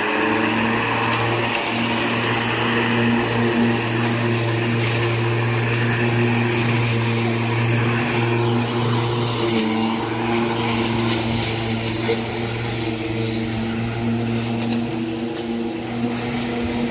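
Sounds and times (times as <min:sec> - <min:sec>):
electric lawn mower running: 0:00.0 - 0:16.9.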